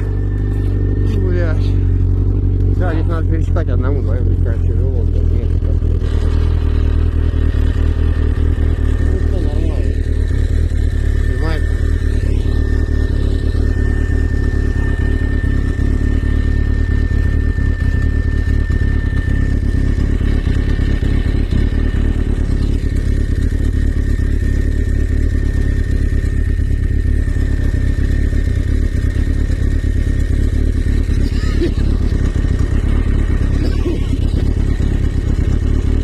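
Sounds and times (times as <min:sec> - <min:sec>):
thin high whine: 0:00.0 - 0:05.2, 0:08.8 - 0:28.1
vehicle engine rumbling: 0:00.0 - 0:36.0.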